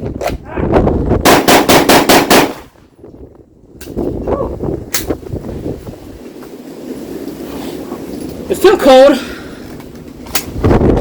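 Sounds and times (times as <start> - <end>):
wind rumbling on microphone: 0.0 - 11.0
pistol shots: 1.2 - 2.8.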